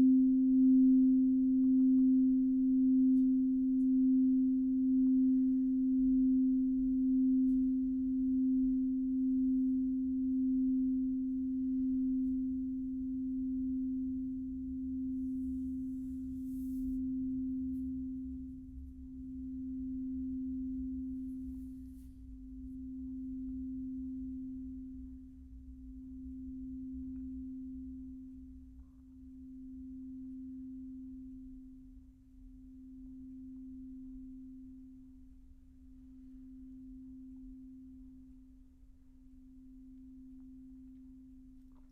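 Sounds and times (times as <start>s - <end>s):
pure ringing tone: 0.0s - 25.0s.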